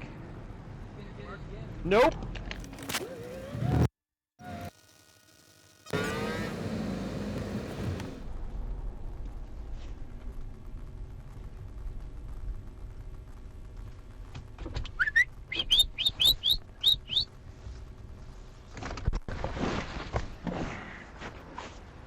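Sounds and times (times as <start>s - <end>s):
short loud rising whistles: 15.0s - 17.3s.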